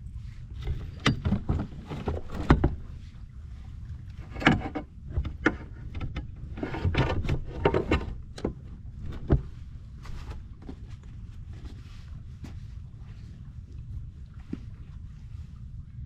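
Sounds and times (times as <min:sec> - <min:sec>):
wind rumble on microphone: 0:00.0 - 0:16.0
gear knocking and scraping: 0:00.6 - 0:02.8, 0:04.2 - 0:10.9.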